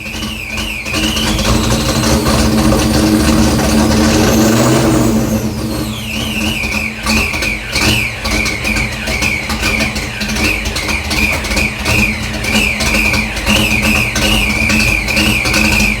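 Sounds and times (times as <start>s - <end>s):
car exhaust idling: 0.0s - 16.0s
high whine: 0.0s - 16.0s.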